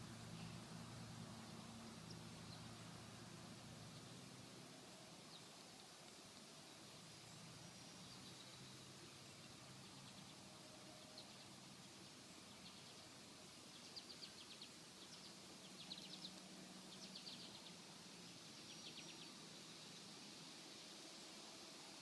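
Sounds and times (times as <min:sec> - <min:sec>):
steady hiss: 0:00.0 - 0:22.0
faint bird chirps: 0:07.1 - 0:19.9.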